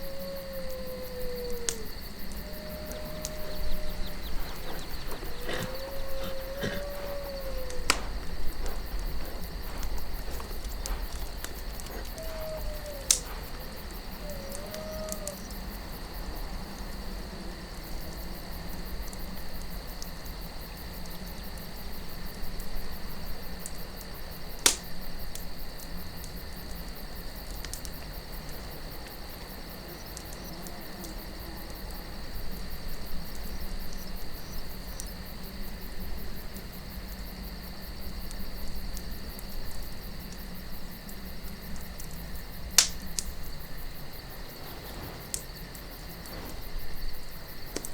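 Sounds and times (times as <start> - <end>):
crickets chirring: 0.0 - 47.9
low wind: 0.0 - 47.9
campfire crackling and popping: 1.5 - 15.9, 23.6 - 32.0, 38.1 - 47.9.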